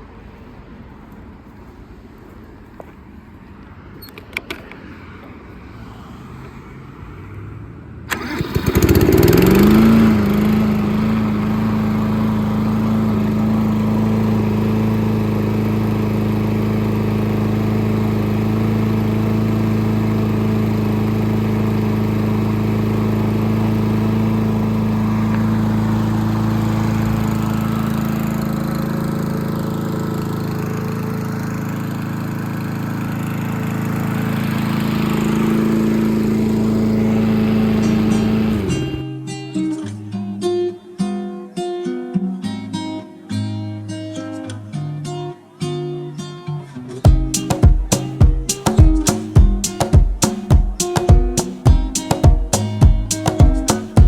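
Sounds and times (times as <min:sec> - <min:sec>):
lawn mower engine starting: 0:08.1 - 0:39.1, 0:47.1 - 0:54.0.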